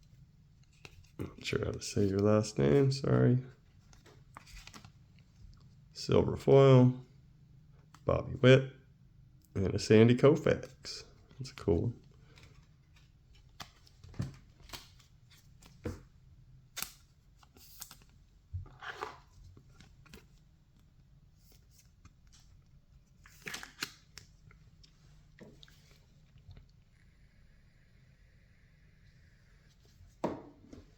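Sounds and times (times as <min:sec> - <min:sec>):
cards clicking and rustling: 0:11.4 - 0:16.0, 0:23.2 - 0:24.6.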